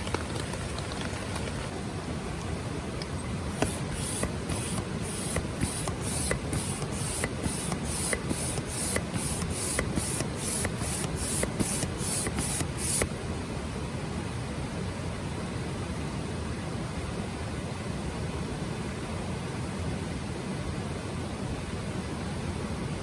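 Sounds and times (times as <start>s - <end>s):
steady hiss: 3.0s - 13.4s
rhythmic rasping strokes: 3.5s - 13.1s.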